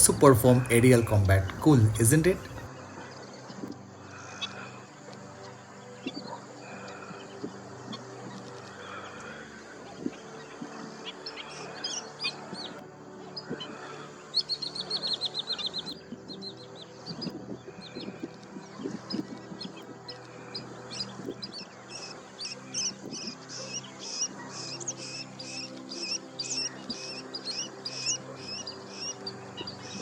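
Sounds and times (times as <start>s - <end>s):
soft background music: 0.0s - 30.0s
bird trill: 20.9s - 30.0s.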